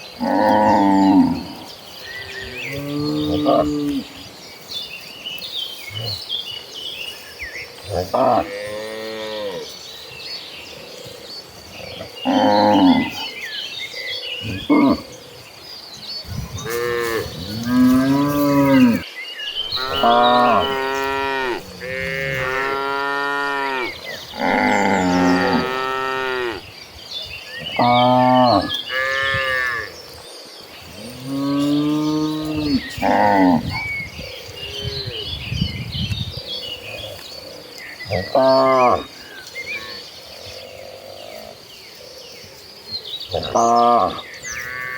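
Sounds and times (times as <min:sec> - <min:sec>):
cattle mooing: 0:16.6 - 0:19.0, 0:19.7 - 0:26.6.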